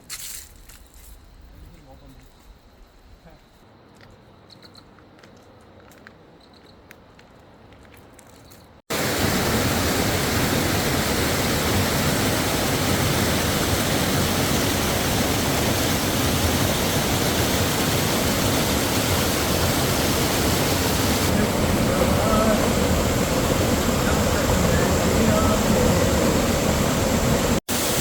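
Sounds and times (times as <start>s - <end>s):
waterfall rushing: 8.9s - 28.0s.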